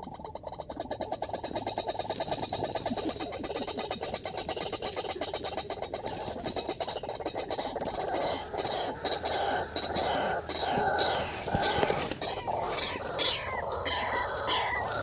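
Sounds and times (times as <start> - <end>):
waterhen calling harshly: 7.5 - 15.0.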